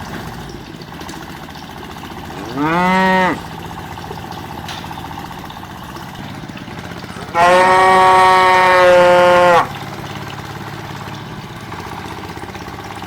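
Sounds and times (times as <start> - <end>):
small motor humming: 2.1 - 13.0
cow mooing: 2.3 - 3.6, 7.3 - 9.8.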